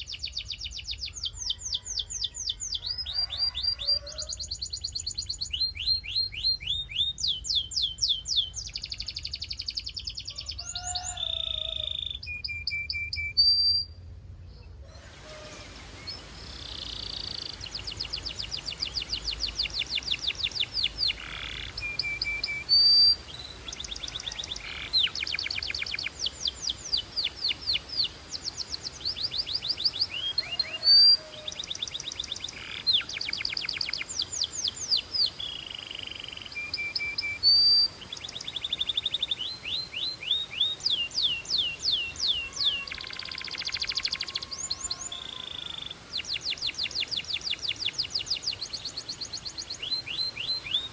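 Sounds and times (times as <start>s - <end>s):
canary singing trills: 0.0s - 14.0s, 14.6s - 50.9s
high whistled bird notes: 14.9s - 48.6s.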